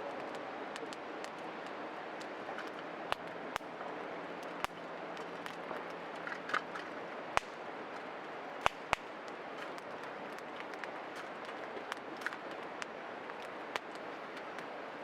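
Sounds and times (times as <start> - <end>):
wood fire crackling: 0.0 - 15.0
sharp pops: 7.4 - 7.6, 8.6 - 14.7.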